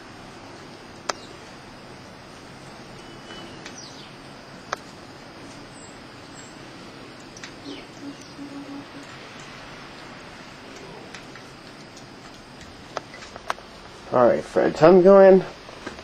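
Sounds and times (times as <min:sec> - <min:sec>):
snowstorm hiss: 0:00.0 - 0:16.0
bird chirps: 0:03.0 - 0:04.2, 0:05.7 - 0:06.6, 0:07.6 - 0:09.1.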